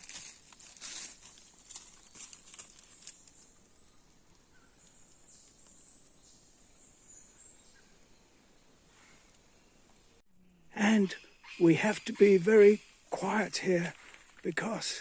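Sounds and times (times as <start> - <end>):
sharp crackles: 0.0 - 3.5.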